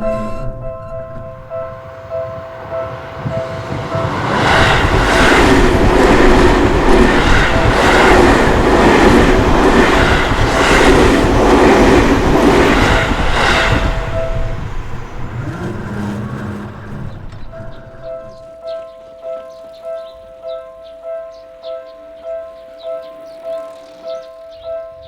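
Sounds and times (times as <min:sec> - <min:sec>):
crossing warning bell ringing: 0:00.0 - 0:25.0
train wheels clacking over rails: 0:01.2 - 0:18.5.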